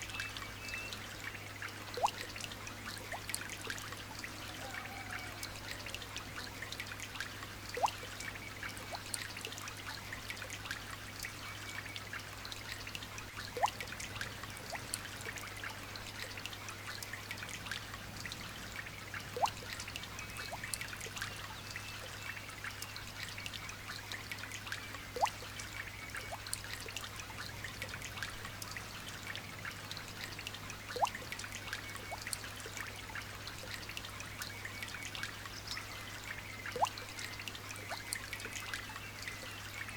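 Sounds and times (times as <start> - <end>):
trickling water: 0.0 - 39.9
drip plopping into water: 1.9 - 3.5, 7.7 - 8.2, 13.4 - 15.4, 19.2 - 21.3, 30.8 - 32.9, 36.7 - 38.6.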